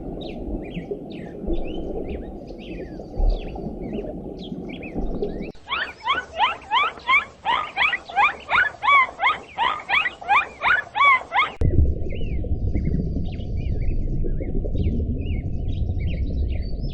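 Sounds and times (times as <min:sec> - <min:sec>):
animal squeaky calls: 0:05.6 - 0:11.6
low rumbling noise: 0:11.6 - 0:16.9.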